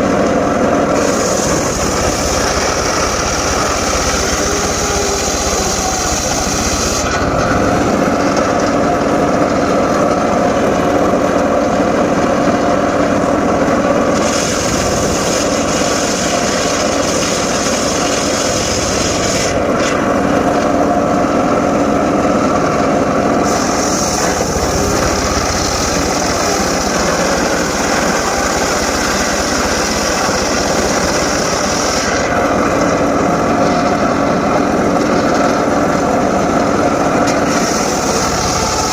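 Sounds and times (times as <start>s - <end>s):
sawmill engine droning: 0.0s - 38.9s
saw blade hissing: 0.9s - 7.3s, 23.4s - 33.0s, 37.3s - 38.9s.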